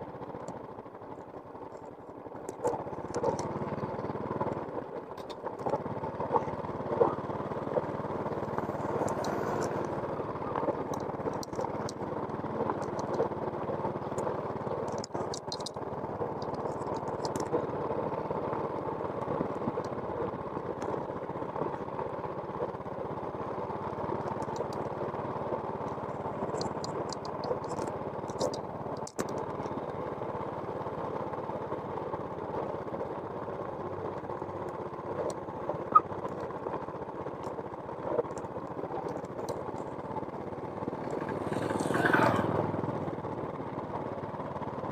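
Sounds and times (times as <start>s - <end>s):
engine running steadily: 0.0s - 44.9s
faint high ticks: 14.1s - 15.8s, 24.2s - 24.9s, 25.8s - 29.8s.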